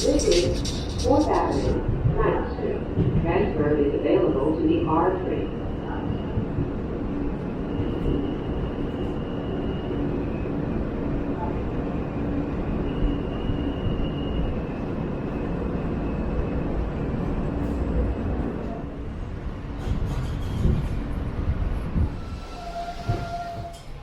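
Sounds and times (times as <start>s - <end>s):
subway train rumbling: 0.0s - 24.0s.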